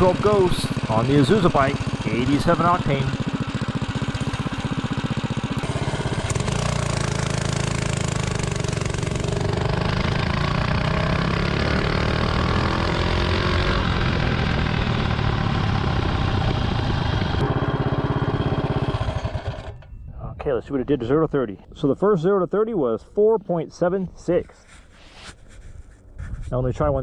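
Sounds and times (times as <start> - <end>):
mini bike engine revving: 0.0 - 19.8.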